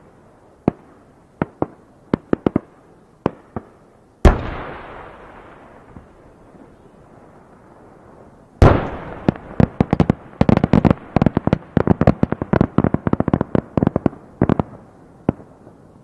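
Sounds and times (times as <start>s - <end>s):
firework bangs and cracks: 0.6s - 6.2s, 8.6s - 15.6s.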